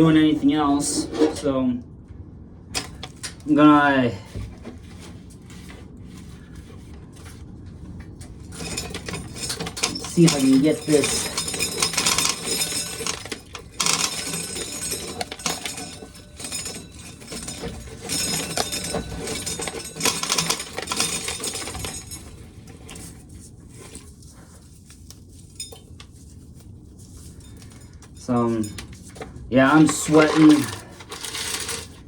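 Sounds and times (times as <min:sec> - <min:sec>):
hard objects clinking and rattling: 0:08.3 - 0:32.0.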